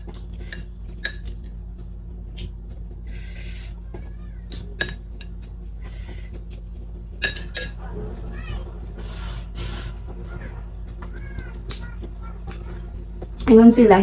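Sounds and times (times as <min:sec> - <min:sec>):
utensils clinking against a dish: 0:00.0 - 0:01.6, 0:04.4 - 0:06.6, 0:07.2 - 0:08.5
low hum: 0:00.0 - 0:14.0.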